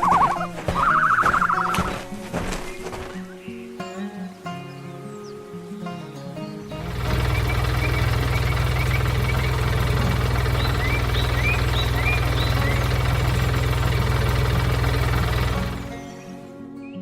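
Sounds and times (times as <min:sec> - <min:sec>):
engine idling: 0:06.8 - 0:16.4.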